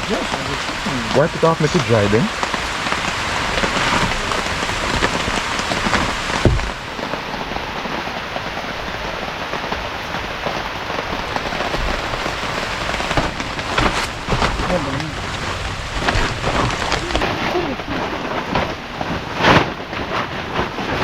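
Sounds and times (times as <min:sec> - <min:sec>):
heavy rain pattering: 0:00.0 - 0:21.0
dull knock: 0:05.8 - 0:06.8.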